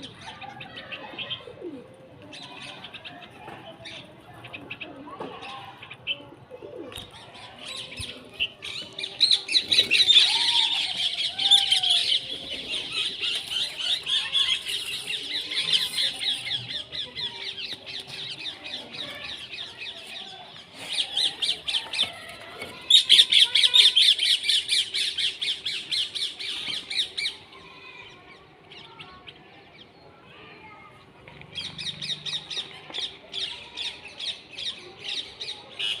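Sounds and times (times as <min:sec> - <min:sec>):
birds chirping: 0:03.9 - 0:22.3.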